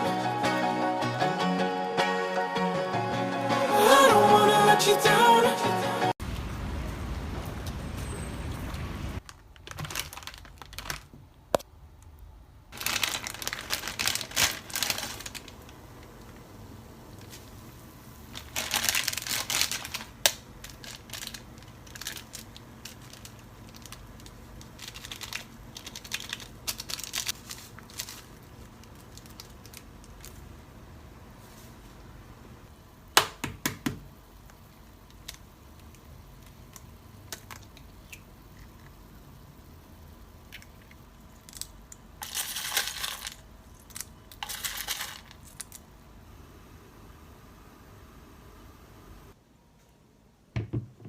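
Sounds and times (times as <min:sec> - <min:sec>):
background music: 0:00.0 - 0:06.2
plastic packaging rustling: 0:09.2 - 0:11.5, 0:12.7 - 0:30.7, 0:40.5 - 0:45.9.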